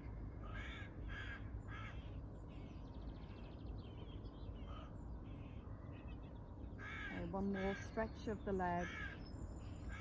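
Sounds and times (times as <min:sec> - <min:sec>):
crow cawing: 0:00.4 - 0:02.1, 0:06.8 - 0:08.0, 0:08.8 - 0:09.2.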